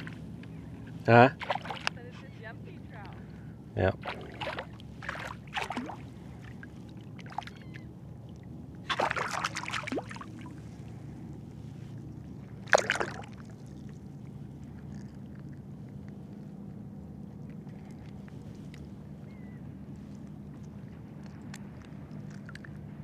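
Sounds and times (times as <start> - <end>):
shallow water splashing: 0.0 - 23.0
steady low rumble: 0.0 - 23.0.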